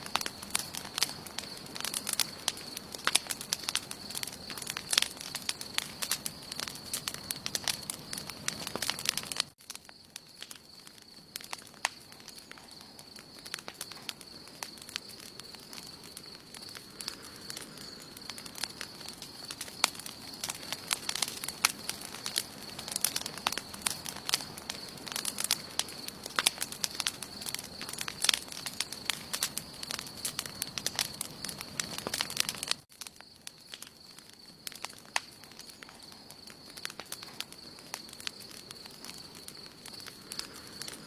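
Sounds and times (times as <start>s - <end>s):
campfire crackling and popping: 0.0s - 41.0s
hiss of flames: 10.6s - 33.0s.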